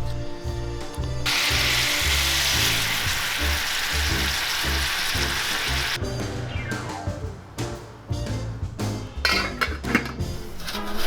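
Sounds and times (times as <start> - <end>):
food sizzling in a hot pan: 1.3 - 6.0.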